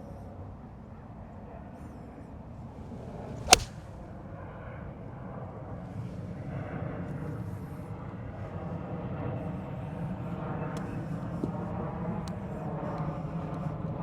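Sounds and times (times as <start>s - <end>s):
golf club striking ball: 2.9s - 4.0s.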